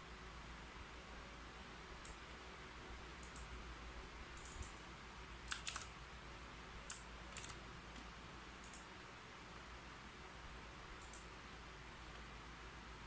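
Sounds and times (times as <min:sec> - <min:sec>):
keyboard keys clicking: 0:04.4 - 0:04.8, 0:05.5 - 0:05.9, 0:06.9 - 0:07.6.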